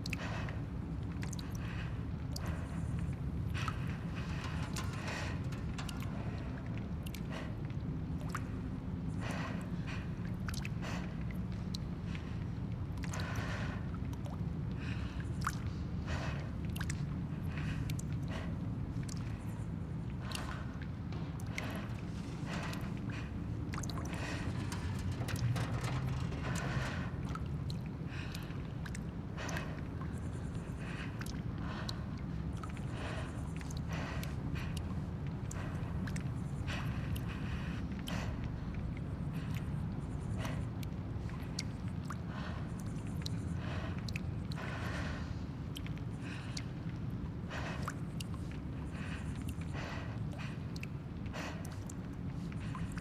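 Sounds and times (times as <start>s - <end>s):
low rumble: 20.0s - 29.1s
small clicks and ticks: 21.4s - 32.0s.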